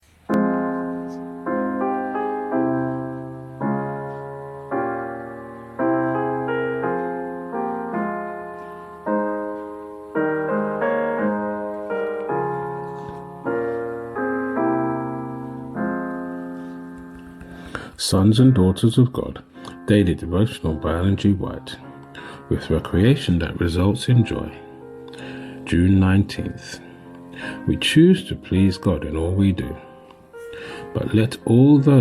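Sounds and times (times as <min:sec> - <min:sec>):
slow piano chords: 0:00.0 - 0:32.0.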